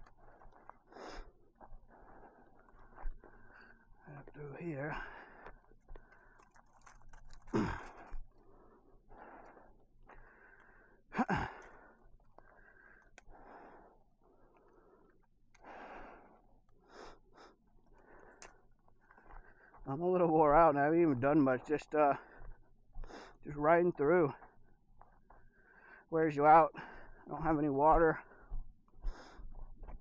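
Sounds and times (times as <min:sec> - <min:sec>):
sighing breaths: 0:00.0 - 0:19.9, 0:26.7 - 0:27.3
man breathing hard: 0:00.1 - 0:04.0, 0:04.8 - 0:19.9, 0:22.2 - 0:23.4, 0:24.4 - 0:26.1, 0:26.8 - 0:27.3, 0:28.2 - 0:30.0.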